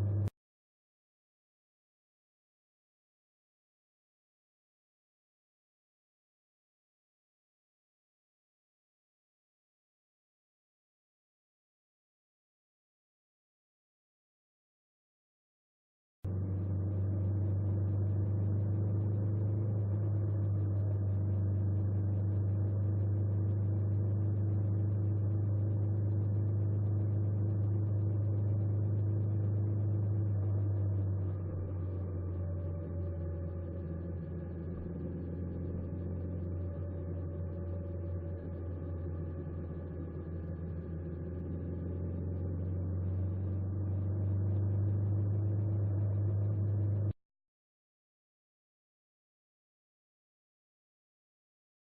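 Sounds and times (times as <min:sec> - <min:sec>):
engine humming steadily: 0:00.0 - 0:00.3, 0:16.3 - 0:47.2.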